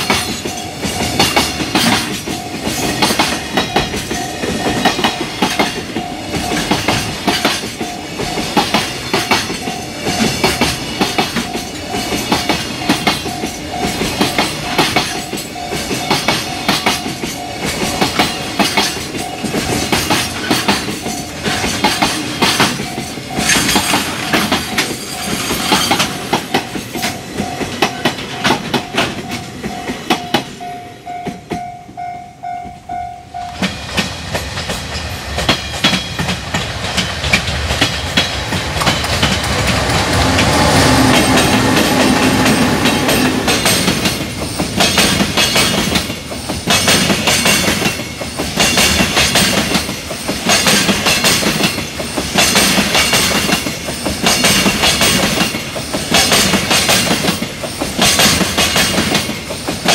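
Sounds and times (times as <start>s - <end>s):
freight train wheels clacking on rail joints: 0.0s - 59.9s
train running noise: 0.0s - 59.9s.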